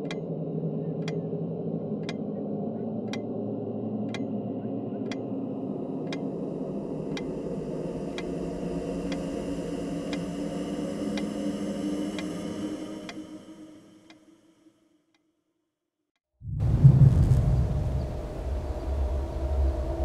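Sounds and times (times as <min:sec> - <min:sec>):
steady low drone: 0:00.0 - 0:14.4, 0:16.4 - 0:20.0
clock ticking: 0:06.1 - 0:06.3.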